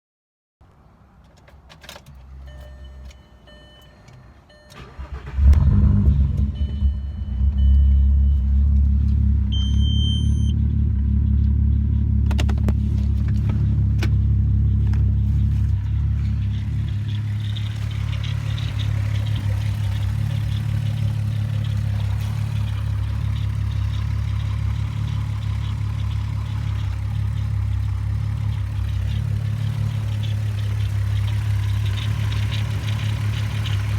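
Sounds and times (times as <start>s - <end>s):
car engine cranking and idling: 1.2s - 33.9s
short beeps: 2.5s - 5.0s, 6.4s - 8.6s, 9.5s - 10.6s.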